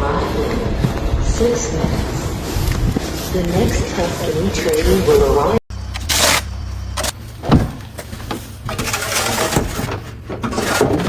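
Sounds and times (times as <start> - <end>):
vehicle running with low hum: 0.0 - 11.0
knocks and thump: 7.0 - 11.0.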